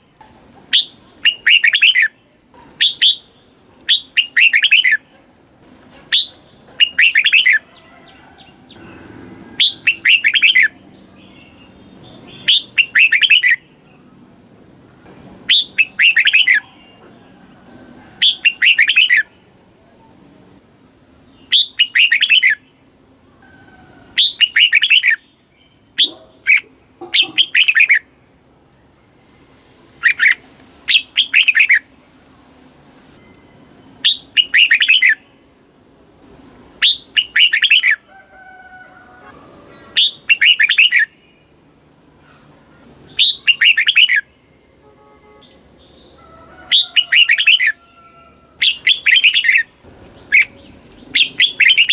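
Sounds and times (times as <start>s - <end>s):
bulbul singing warbled phrases: 0.0s - 5.2s, 6.1s - 7.7s, 8.4s - 17.2s, 18.2s - 20.2s, 21.2s - 22.9s, 24.2s - 28.1s, 30.0s - 31.9s, 33.4s - 35.5s, 36.8s - 38.1s, 39.7s - 47.8s, 48.6s - 51.9s.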